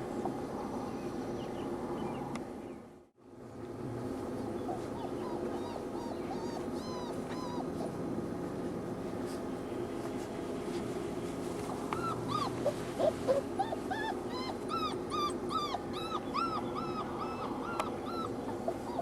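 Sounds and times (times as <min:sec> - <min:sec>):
puppies whimpering: 0:04.7 - 0:08.0, 0:12.0 - 0:19.0.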